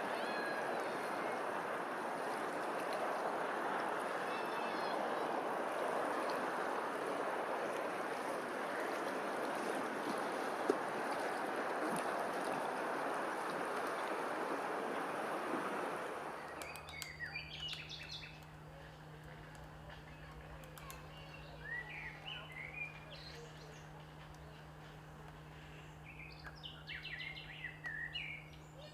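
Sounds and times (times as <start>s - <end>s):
low steady hum: 0.0s - 28.9s
stream water running: 0.0s - 28.9s
small birds chirping: 16.4s - 18.5s, 20.2s - 24.6s, 25.6s - 28.9s.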